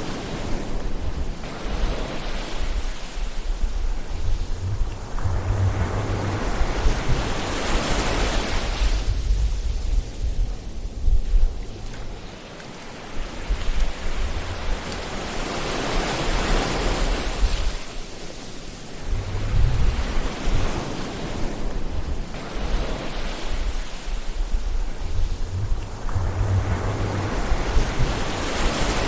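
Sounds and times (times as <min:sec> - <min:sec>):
ocean waves rushing: 0:00.0 - 0:10.9, 0:11.5 - 0:29.0
deep rumble: 0:03.4 - 0:12.2, 0:19.0 - 0:20.8, 0:23.6 - 0:29.0.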